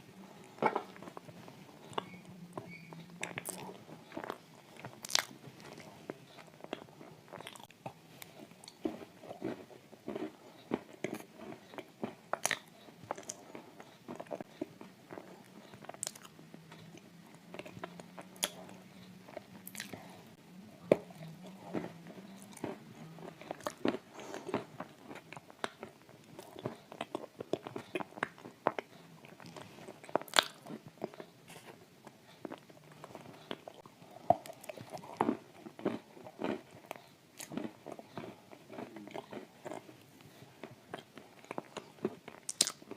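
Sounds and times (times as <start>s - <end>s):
crunching and chewing cookies: 0.0s - 42.9s.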